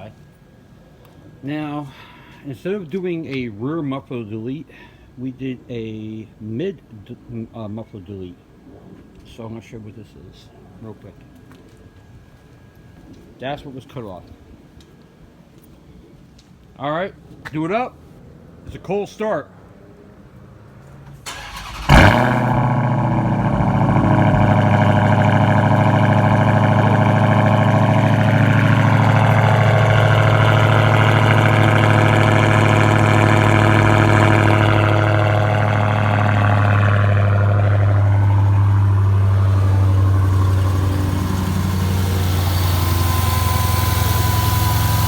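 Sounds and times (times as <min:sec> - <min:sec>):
engine starter cranking: 0:21.3 - 0:23.8, 0:24.5 - 0:45.0
car engine revving and idling: 0:21.3 - 0:45.0.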